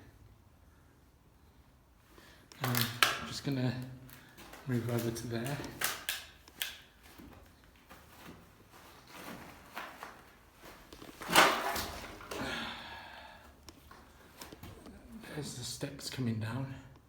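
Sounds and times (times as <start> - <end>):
footsteps on floor: 7.0 - 12.4.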